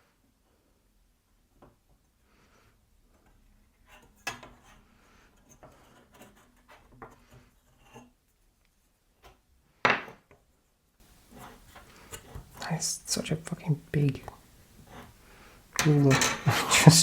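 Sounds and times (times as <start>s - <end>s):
light knocks and rubbing: 11.0s - 12.6s.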